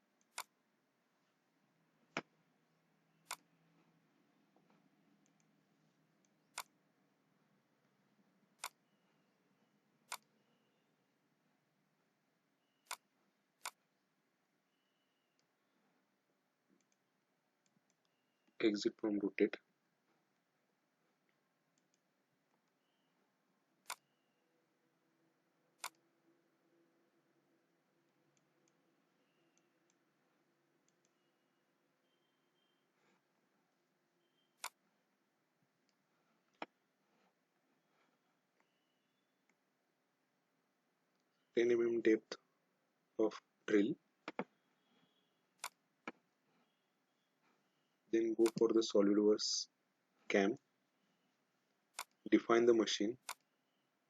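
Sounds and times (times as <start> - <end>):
computer mouse clicking: 0.2 - 0.6, 3.2 - 3.9, 6.2 - 6.8, 8.6 - 8.9, 10.1 - 10.4, 12.8 - 13.9, 16.7 - 17.0, 21.3 - 23.0, 23.8 - 24.2, 25.8 - 26.1, 34.6 - 34.8, 45.1 - 46.2, 48.4 - 48.7, 51.9 - 52.2, 53.2 - 53.5.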